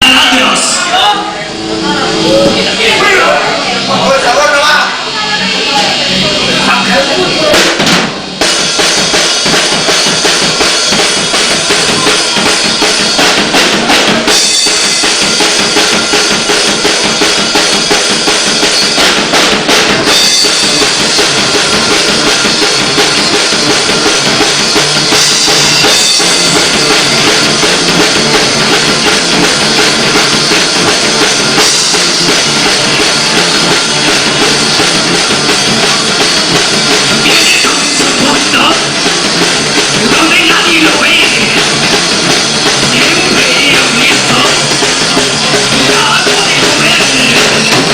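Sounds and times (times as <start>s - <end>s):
rock band playing live: 0.0s - 47.9s
bass drum and snare beat: 6.8s - 47.9s.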